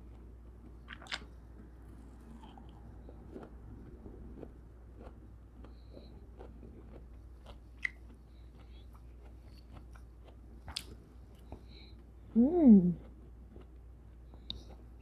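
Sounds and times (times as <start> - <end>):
wet chewing clicks and smacks: 0.0 - 1.4, 2.4 - 12.1.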